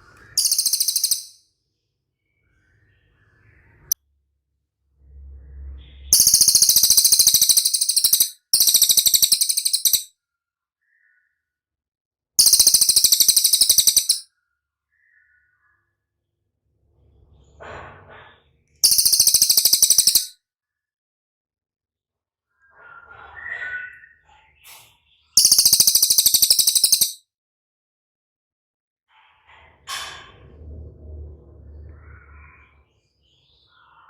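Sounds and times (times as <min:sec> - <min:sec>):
bird singing rapid trills: 0:00.3 - 0:01.4, 0:06.1 - 0:10.1, 0:12.4 - 0:14.2, 0:18.8 - 0:20.3, 0:25.4 - 0:27.2.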